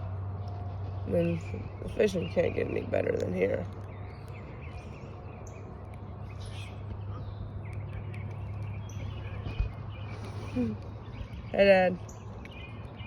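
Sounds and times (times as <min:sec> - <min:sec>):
low outdoor hum: 0:00.0 - 0:13.0
small birds chirping: 0:00.0 - 0:13.0.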